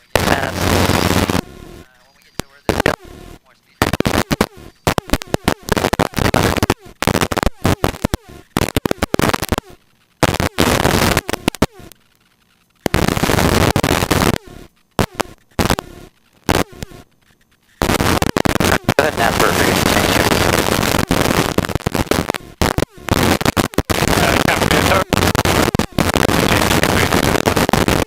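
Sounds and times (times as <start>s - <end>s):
harsh intercom hiss bursts: 0.0s - 9.6s, 15.6s - 28.0s.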